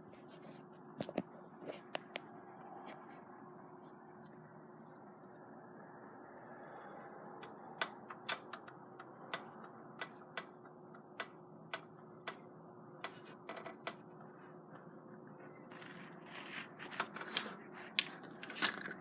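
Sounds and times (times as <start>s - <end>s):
faint hum: 0.0s - 19.0s
sharp clicks: 7.4s - 14.0s.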